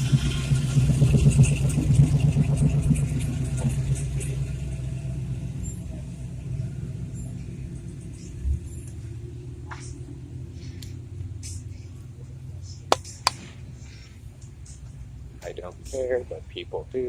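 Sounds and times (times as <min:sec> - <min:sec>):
car engine with pulsing exhaust: 0:00.0 - 0:13.4.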